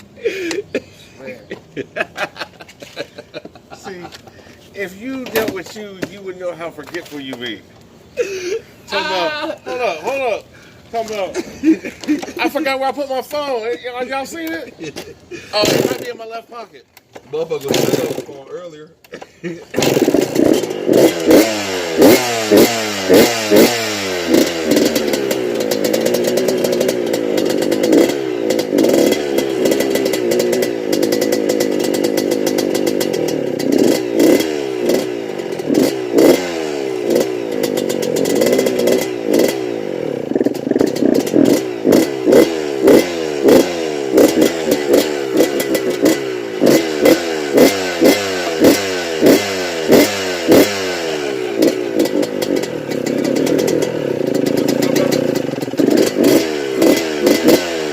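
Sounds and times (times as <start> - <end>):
dirt bike engine revving: 14.8 - 16.3, 17.6 - 18.4, 19.5 - 57.9.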